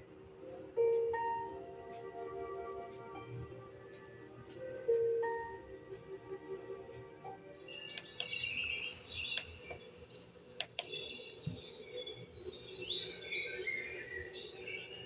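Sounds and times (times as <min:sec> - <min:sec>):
small birds chirping: 0:07.5 - 0:15.0
sharp clicks: 0:07.9 - 0:08.4, 0:09.3 - 0:09.8, 0:10.6 - 0:11.0.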